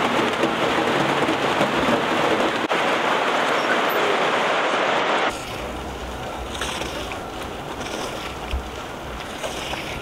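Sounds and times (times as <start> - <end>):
light rain falling: 0.0 - 10.0.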